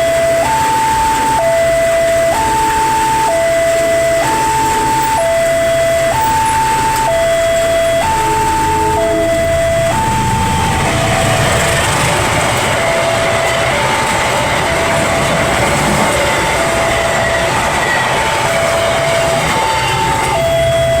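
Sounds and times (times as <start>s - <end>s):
two-tone crossing alarm: 0.0s - 21.0s
train wheels clattering on rails: 10.1s - 21.0s.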